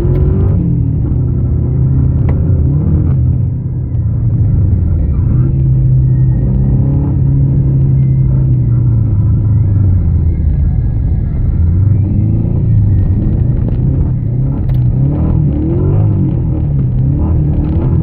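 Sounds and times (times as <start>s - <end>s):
car engine from inside cabin: 0.0s - 18.0s
road rumble: 0.0s - 18.0s.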